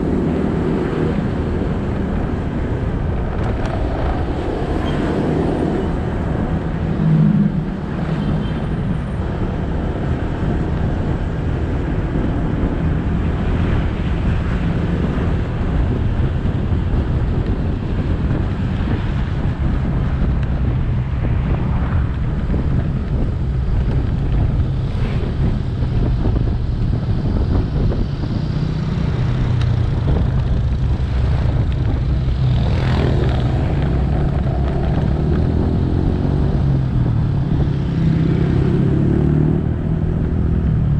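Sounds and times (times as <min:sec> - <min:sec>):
passing traffic: 0:00.0 - 0:40.9
road and wind noise: 0:00.0 - 0:40.9.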